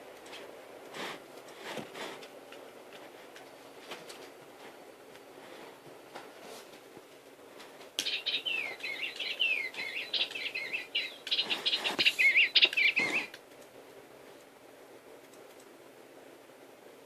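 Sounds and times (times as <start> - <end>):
songbird warbling: 8.0 - 13.4.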